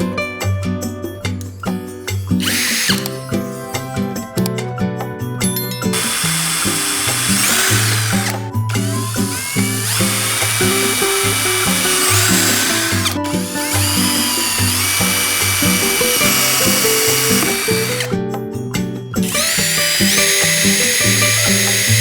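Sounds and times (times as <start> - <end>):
background music: 0.0 - 22.0
small power tool whining: 2.1 - 4.5, 5.9 - 18.2, 19.2 - 22.0.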